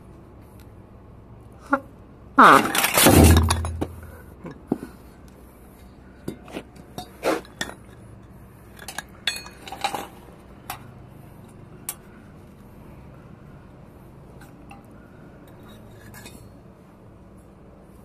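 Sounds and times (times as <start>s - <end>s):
metal tools clinking: 8.8s - 10.8s.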